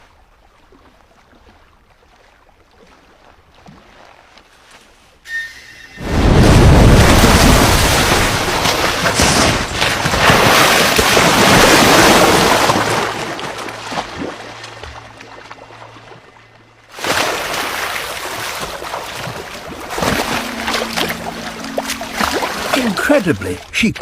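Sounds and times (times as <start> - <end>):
splashing surging water: 6.0 - 24.0.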